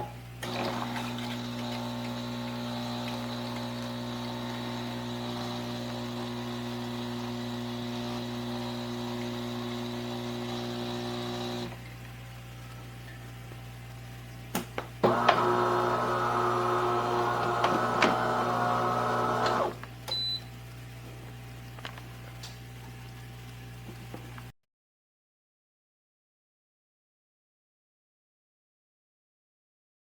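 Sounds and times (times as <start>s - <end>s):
louder machine hum: 0.4s - 11.7s, 15.0s - 19.8s
espresso machine pump humming: 0.4s - 11.8s, 15.0s - 20.4s.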